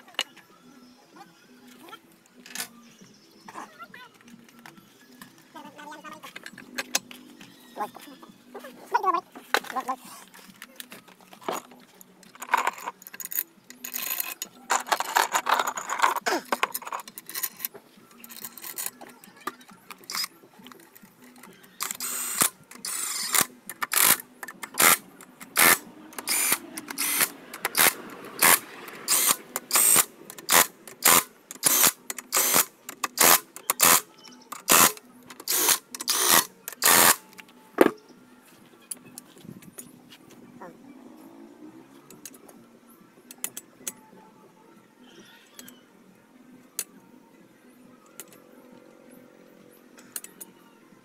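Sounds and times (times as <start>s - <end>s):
hand tool scraping engine parts: 12.4s - 17.7s.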